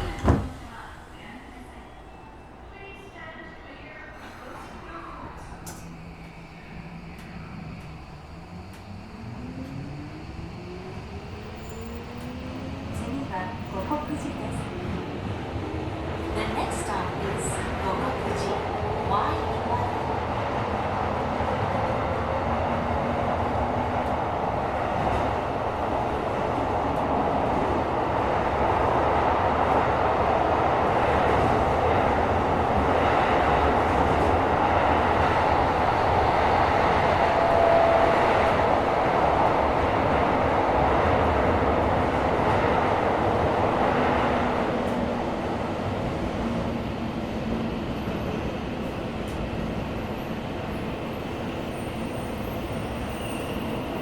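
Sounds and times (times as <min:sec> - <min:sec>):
subway train wheels rumbling: 0:00.0 - 0:54.0.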